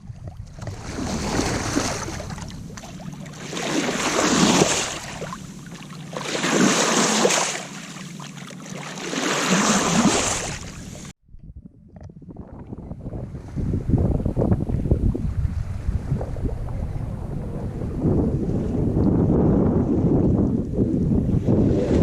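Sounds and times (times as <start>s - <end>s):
water surging along boat hull: 0.5s - 11.1s.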